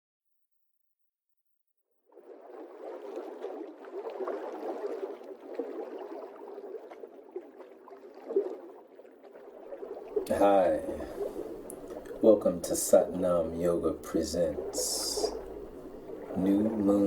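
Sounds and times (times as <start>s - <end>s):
small splashes and clicks: 2.1s - 12.9s
gurgling flowing water: 2.1s - 17.0s.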